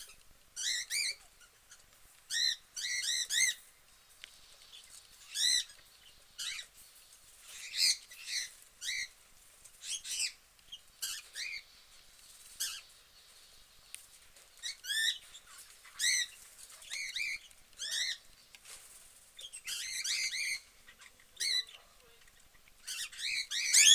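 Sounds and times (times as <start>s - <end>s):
budgerigars chirping: 0.0s - 3.6s, 4.7s - 6.7s, 7.4s - 9.2s, 9.8s - 11.7s, 12.6s - 13.0s, 14.6s - 18.3s, 19.4s - 23.9s.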